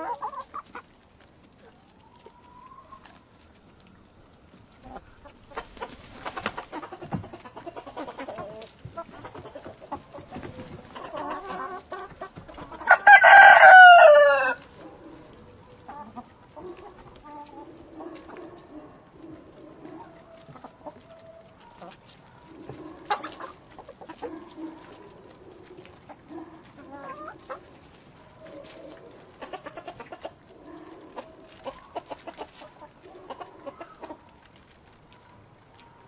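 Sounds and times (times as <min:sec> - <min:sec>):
hens clucking: 0:00.0 - 0:36.0
rooster crowing: 0:12.9 - 0:14.6.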